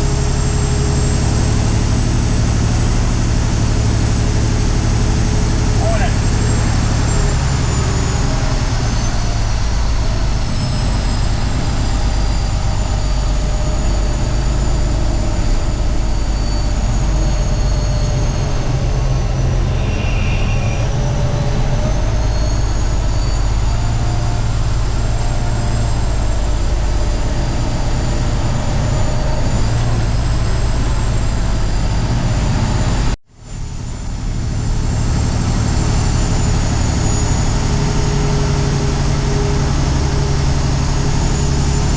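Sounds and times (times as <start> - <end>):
diesel truck engine rumbling: 0.0 - 41.9
faint high whine: 14.6 - 23.8.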